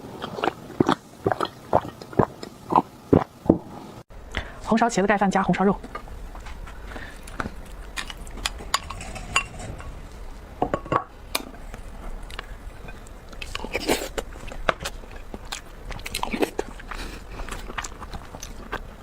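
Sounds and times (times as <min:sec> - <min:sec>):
chewing and mouth sounds: 0:00.0 - 0:03.3, 0:05.8 - 0:08.8, 0:11.7 - 0:19.0.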